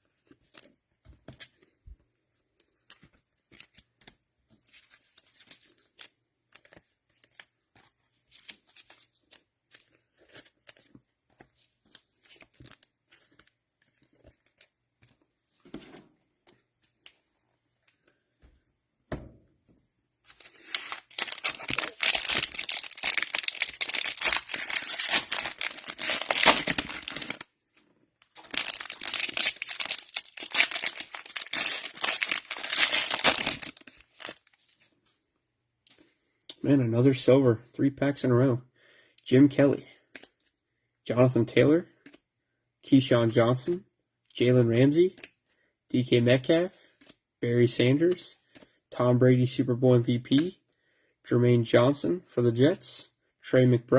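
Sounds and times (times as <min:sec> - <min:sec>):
plastic wrapper tearing: 0:20.3 - 0:27.4, 0:28.3 - 0:34.6
plastic wrappers crinkling: 0:20.3 - 0:27.5, 0:28.2 - 0:34.6.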